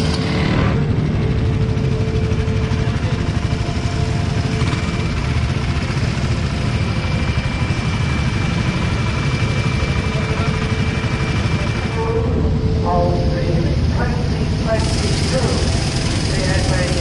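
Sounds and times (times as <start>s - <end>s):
motorcycle engines running: 0.0s - 17.0s.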